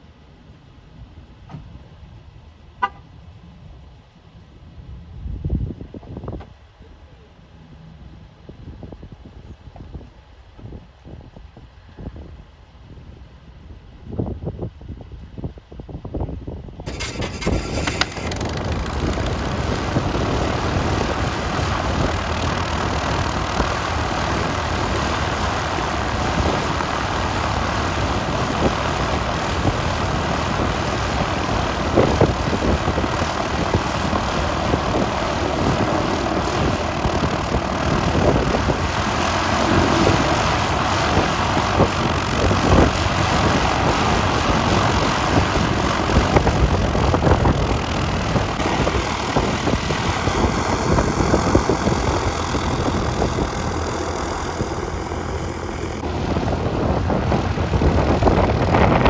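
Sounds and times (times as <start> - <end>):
propeller airplane engine running: 16.4 - 59.0.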